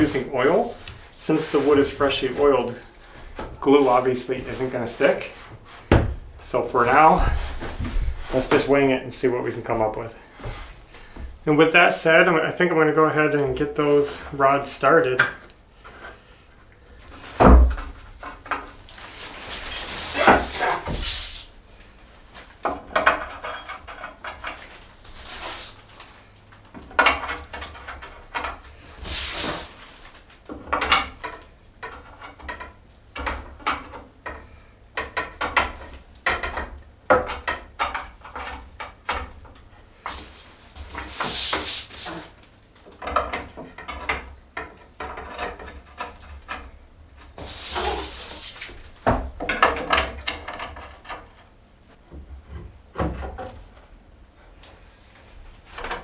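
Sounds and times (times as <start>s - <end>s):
metal and wood knocking: 5.8s - 6.4s
metal scraping slides: 19.0s - 21.5s, 47.4s - 48.8s.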